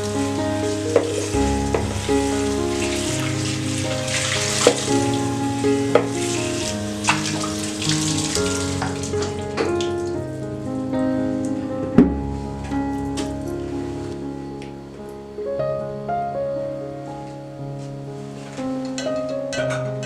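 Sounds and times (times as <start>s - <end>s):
steady hiss: 0.0s - 11.8s
soft background music: 0.0s - 20.0s.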